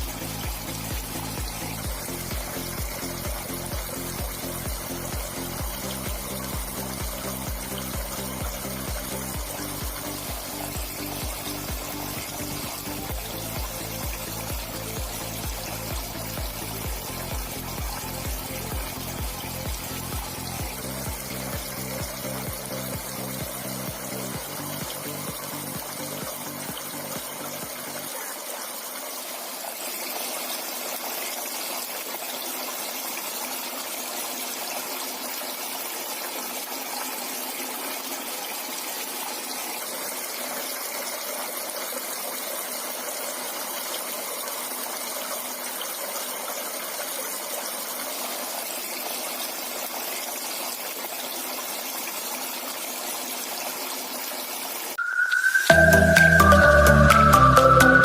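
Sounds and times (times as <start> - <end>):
water fountain splashing: 0.0 - 58.0.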